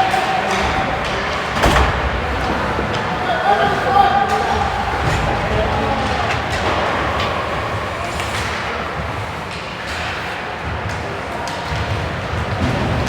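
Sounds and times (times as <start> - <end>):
hockey sticks and puck clacking: 0.0 - 13.0
murmur of voices in arena: 0.0 - 13.0.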